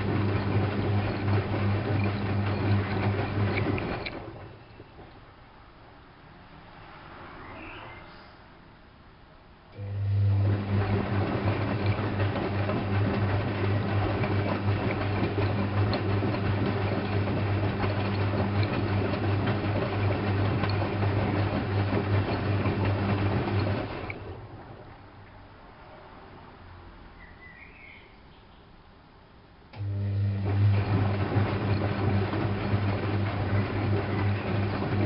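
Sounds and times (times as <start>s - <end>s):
water rushing through pump: 0.0s - 5.4s, 9.8s - 25.8s, 29.8s - 35.0s
washing machine drain pump humming: 0.0s - 5.5s, 9.7s - 25.4s, 29.7s - 35.0s.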